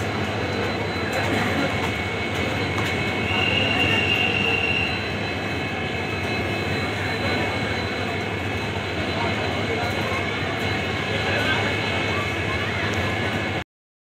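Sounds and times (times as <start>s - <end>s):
train wheels rumbling on rail: 0.0s - 13.6s
high thin squeal: 3.1s - 5.6s.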